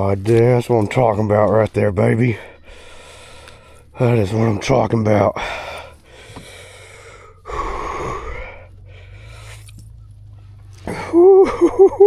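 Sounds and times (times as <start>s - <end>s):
man gasping for breath: 2.5s - 3.9s, 5.4s - 9.8s
man whooping: 10.9s - 12.0s.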